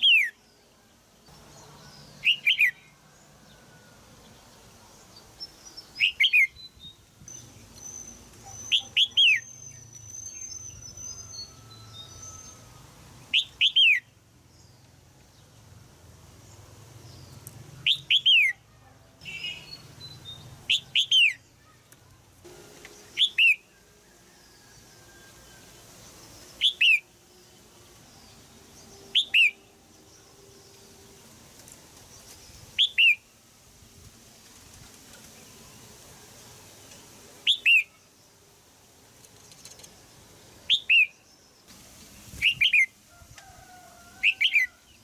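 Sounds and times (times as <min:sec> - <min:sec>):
bird chirping: 0:00.0 - 0:15.7, 0:16.4 - 0:33.4, 0:37.4 - 0:38.5, 0:39.2 - 0:43.0.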